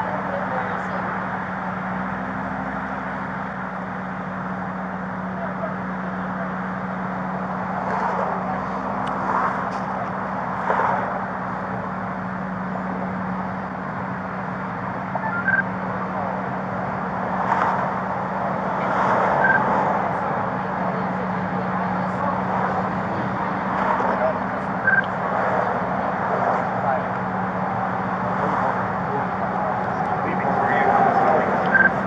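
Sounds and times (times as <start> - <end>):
freeway traffic passing: 0.0 - 32.0
short high beeps: 15.2 - 15.7, 19.4 - 19.7, 24.8 - 25.1, 31.6 - 32.0.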